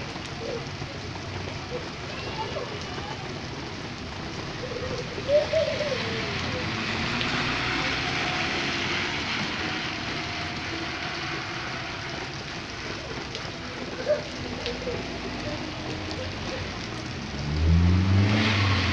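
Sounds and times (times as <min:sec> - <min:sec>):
rain falling: 0:00.0 - 0:18.9
car engine accelerating: 0:03.9 - 0:18.9.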